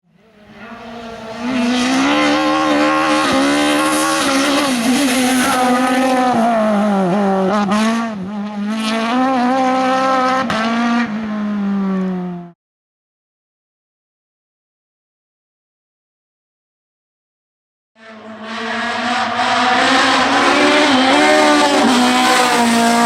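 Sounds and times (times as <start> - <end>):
race car engine revving: 0.1 - 12.6, 18.0 - 23.0.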